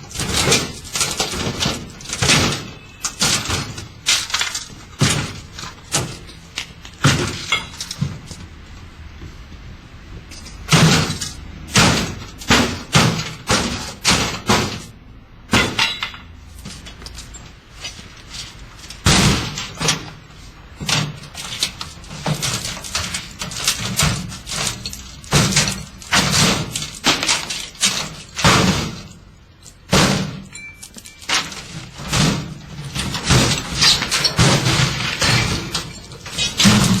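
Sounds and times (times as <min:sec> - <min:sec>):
heavy blows on washing machine: 0:00.0 - 0:08.6, 0:10.6 - 0:16.0, 0:31.3 - 0:37.0
crashing and breaking: 0:00.0 - 0:08.7, 0:10.3 - 0:37.0
glassy clinking: 0:30.5 - 0:31.4.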